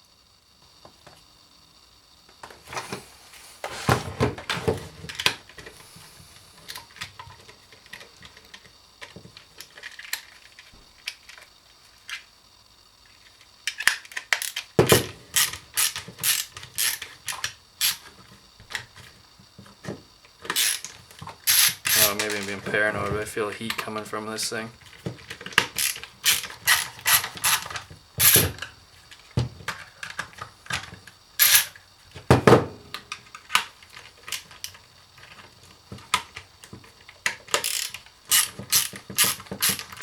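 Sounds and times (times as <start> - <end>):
battery pack parts clicking: 13.7 - 18.1, 20.5 - 22.8, 24.9 - 28.7, 29.7 - 31.8, 33.0 - 40.0.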